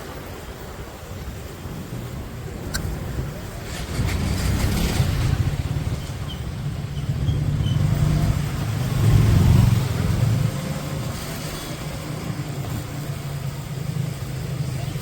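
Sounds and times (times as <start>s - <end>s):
motorcycle engine running: 2.8s - 11.1s.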